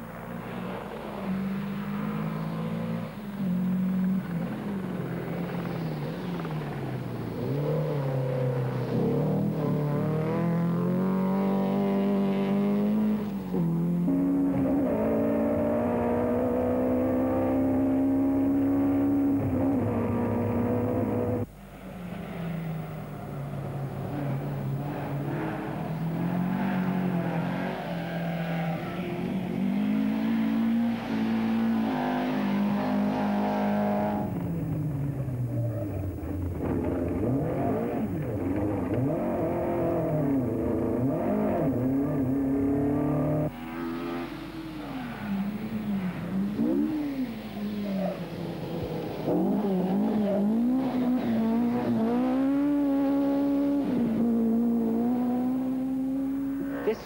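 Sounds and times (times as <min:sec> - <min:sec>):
rally car engines at full throttle: 0:00.0 - 0:57.0.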